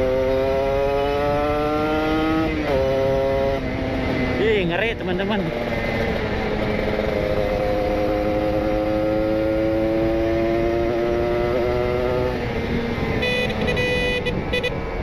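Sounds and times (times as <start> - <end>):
two-stroke motorcycle engine revving: 0.0 - 15.0
vehicle horn beeping: 13.2 - 14.8.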